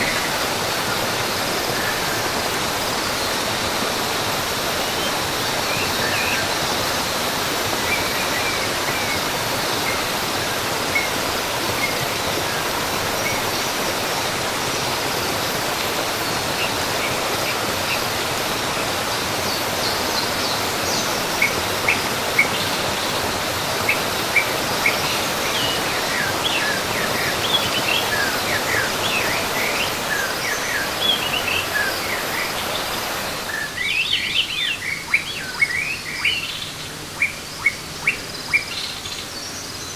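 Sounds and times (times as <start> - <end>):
waterfall rushing: 0.0 - 38.6
birds chirping: 18.9 - 39.9.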